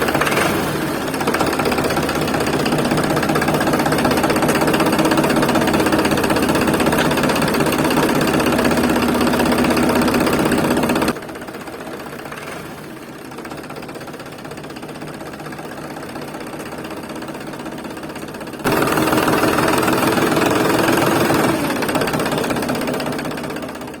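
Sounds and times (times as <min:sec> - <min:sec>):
motor running: 0:00.0 - 0:12.9, 0:18.2 - 0:23.9.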